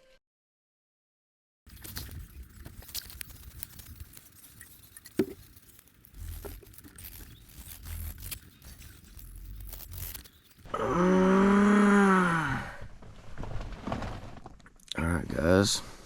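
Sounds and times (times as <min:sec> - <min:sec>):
close rustling and crinkling: 0:01.7 - 0:10.7, 0:13.0 - 0:14.7.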